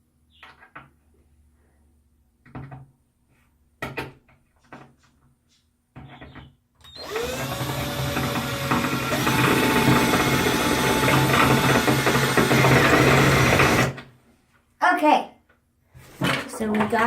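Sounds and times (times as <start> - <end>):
hardware clicks and knocks: 3.8 - 5.0
power drill whine: 6.8 - 14.0.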